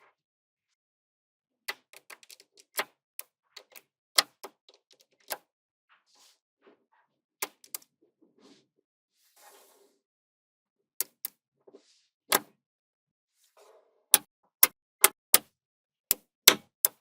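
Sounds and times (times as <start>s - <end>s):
soft scrapes: 5.9s - 7.2s, 8.2s - 10.1s, 11.7s - 12.2s, 13.3s - 14.0s.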